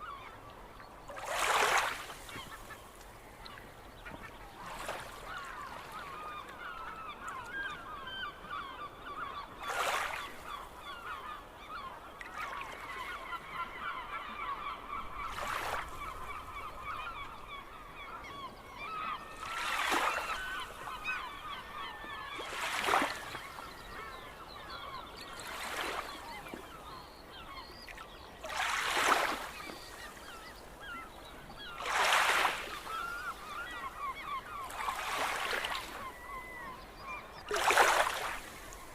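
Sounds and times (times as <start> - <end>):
gulls calling: 0.0 - 38.9.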